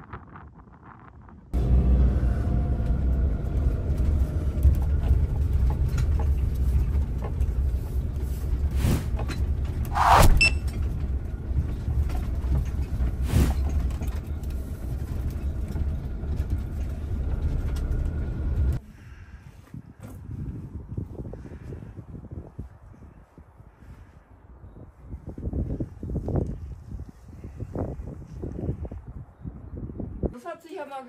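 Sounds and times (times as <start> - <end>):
vehicle rumble from inside: 1.5 - 18.8
brief squeak: 10.0 - 10.7.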